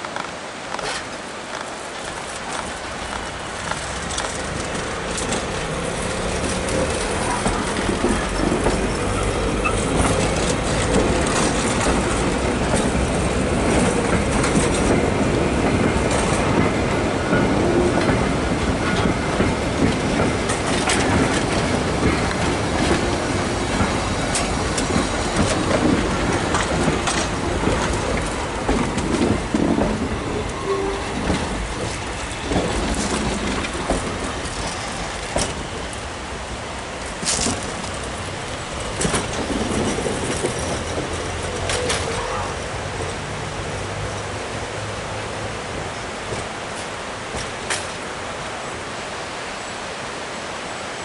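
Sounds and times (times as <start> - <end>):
railcar wheels clicking over rail joints: 0.0 - 48.6
wheel squeals: 4.2 - 11.8.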